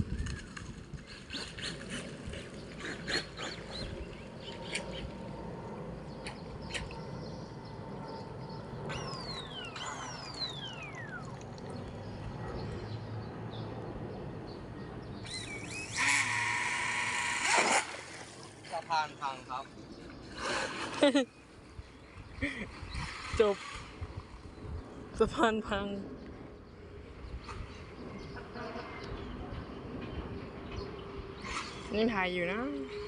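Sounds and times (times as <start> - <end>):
bird calls: 0.1 - 5.2, 6.1 - 13.7, 14.5 - 16.4
falling whistles: 15.3 - 16.2.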